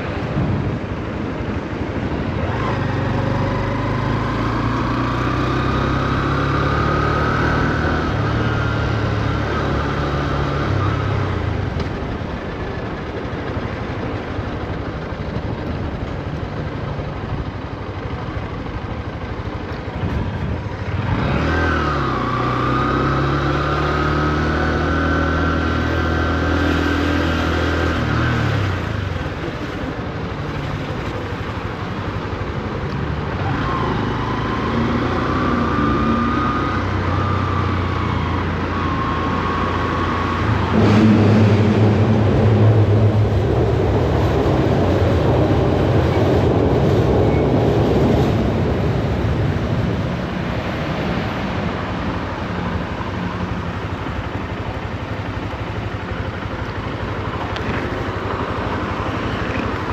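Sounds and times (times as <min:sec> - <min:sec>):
wind rush on microphone: 0:00.0 - 0:02.6
motorcycle engine running: 0:00.0 - 0:33.8, 0:51.6 - 0:59.9.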